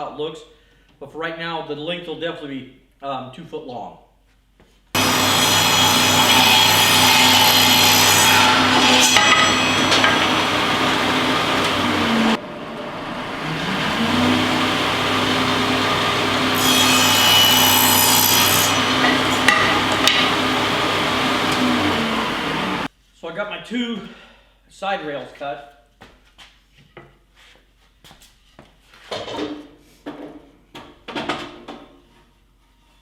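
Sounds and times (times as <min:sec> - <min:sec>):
saw blade rasping through wood: 0:05.0 - 0:12.4, 0:13.4 - 0:22.9
saw motor hum: 0:05.0 - 0:22.9.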